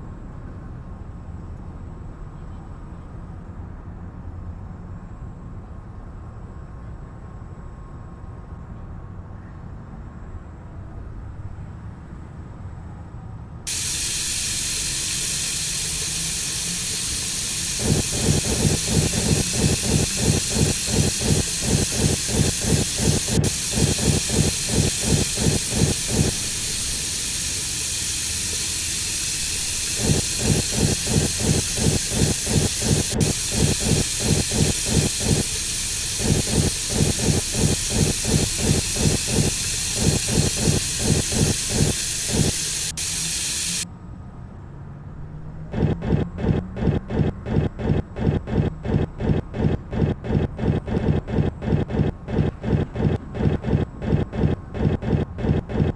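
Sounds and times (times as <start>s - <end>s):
water hissing into drum: 13.7s - 43.8s.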